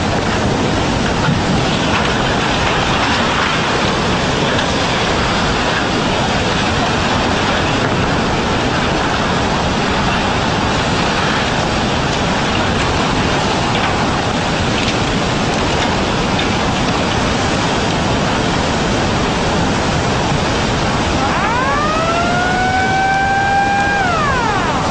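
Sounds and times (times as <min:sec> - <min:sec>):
floodwater rushing: 0:08.3 - 0:24.9.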